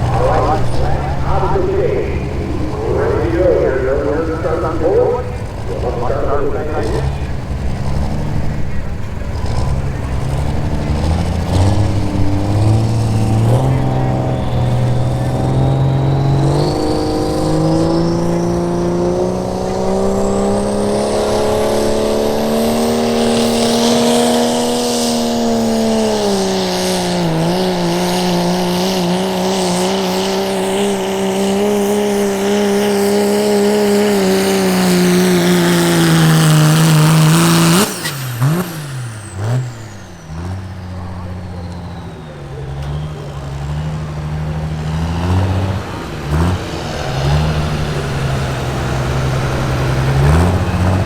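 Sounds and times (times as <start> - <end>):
diesel truck engine at full throttle: 0.0 - 51.0.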